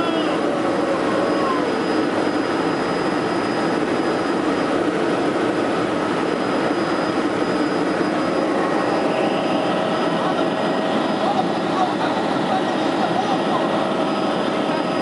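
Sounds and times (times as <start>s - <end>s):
helicopter engine and rotor noise: 0.0s - 15.0s.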